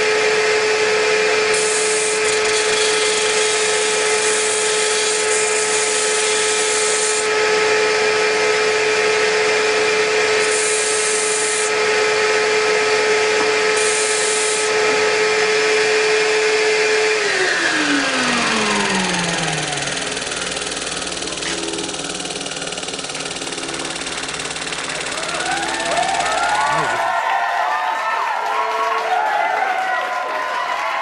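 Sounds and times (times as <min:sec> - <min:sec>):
disc sander whining: 0:00.0 - 0:27.1
wood hissing against sanding disc: 0:13.6 - 0:15.1.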